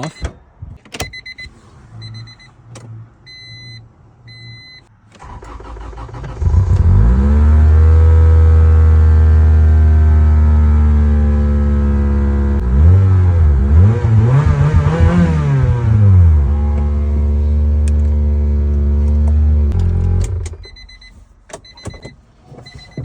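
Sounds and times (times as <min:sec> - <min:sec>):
car engine cranking and idling: 0:04.3 - 0:23.0
short electronic beeps: 0:20.6 - 0:22.0.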